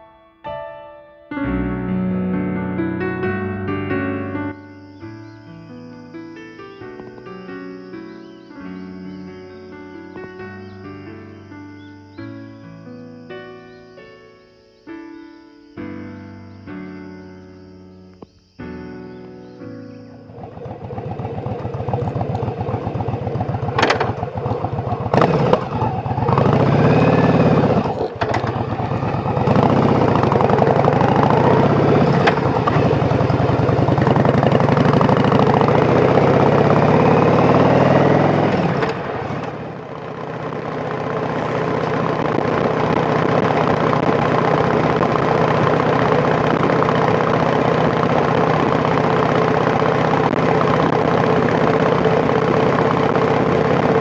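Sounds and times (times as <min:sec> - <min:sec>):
motorcycle engine revving: 0:20.1 - 0:54.0.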